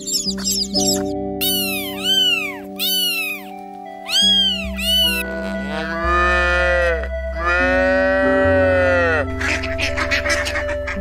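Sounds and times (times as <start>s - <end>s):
background music: 0.0s - 11.0s
kitten meowing: 1.4s - 3.5s, 4.1s - 5.2s
cow mooing: 5.2s - 9.3s.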